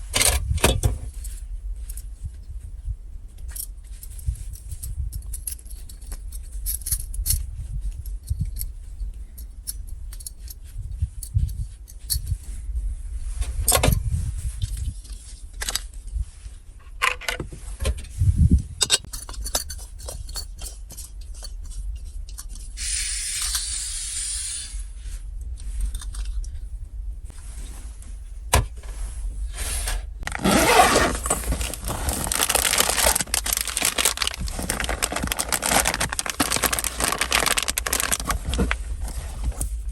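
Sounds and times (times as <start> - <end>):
strong wind against car: 10.8 - 15.0, 17.4 - 19.0
metallic clinks and clicks: 18.8 - 22.7
short hiss: 22.8 - 24.9.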